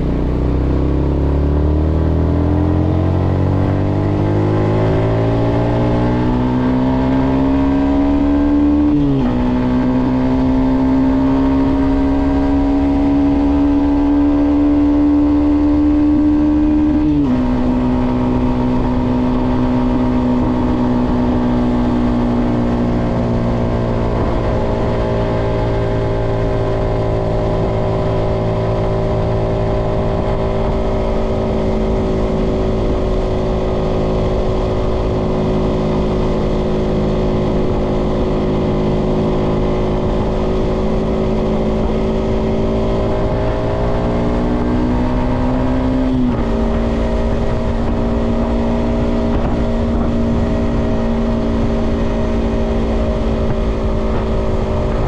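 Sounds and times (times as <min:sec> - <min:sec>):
motorcycle engine: 0:00.0 - 0:55.0
wind on microphone: 0:11.8 - 0:55.0.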